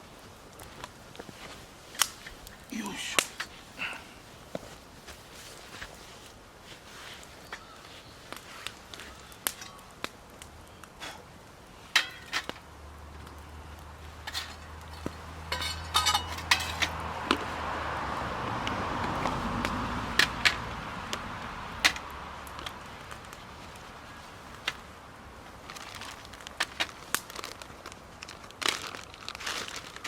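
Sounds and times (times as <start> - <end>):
ringing clinks: 15.5 - 16.8.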